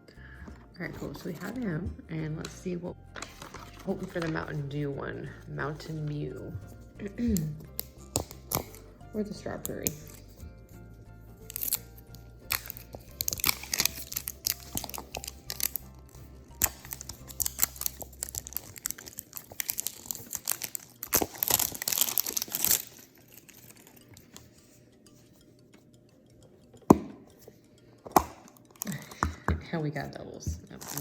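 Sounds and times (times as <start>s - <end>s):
soft background music: 0.0s - 31.0s
packaging tearing and crinkling: 16.6s - 23.0s.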